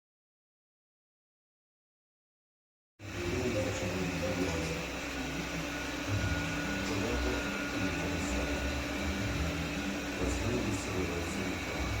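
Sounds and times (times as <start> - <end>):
robot vacuum cleaner running: 3.0 - 12.0.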